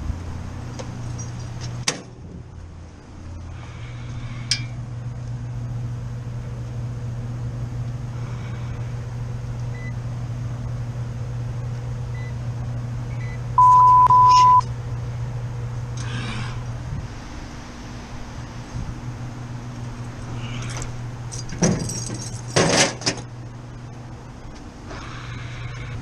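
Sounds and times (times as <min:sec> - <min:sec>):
hvac unit humming: 0:00.0 - 0:26.0
loud electronic beep: 0:13.6 - 0:14.7.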